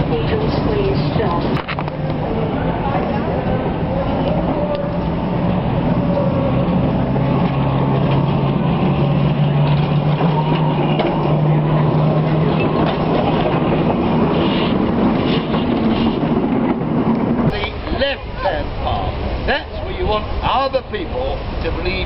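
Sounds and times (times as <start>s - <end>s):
low motor hum: 0.0s - 22.0s
tram rumble: 0.0s - 22.0s.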